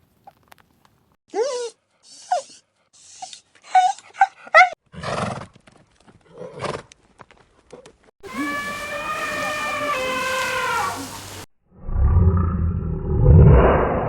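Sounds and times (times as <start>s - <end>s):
short animal calls: 8.2s - 11.4s.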